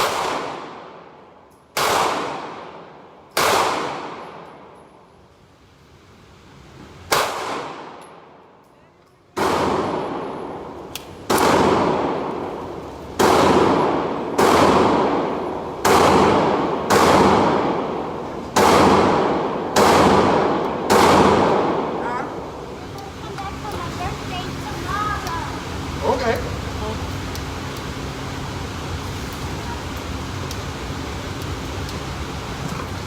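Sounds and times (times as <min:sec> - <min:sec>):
gunshots with long echo: 0:00.0 - 0:04.8, 0:07.1 - 0:08.3, 0:09.4 - 0:22.5.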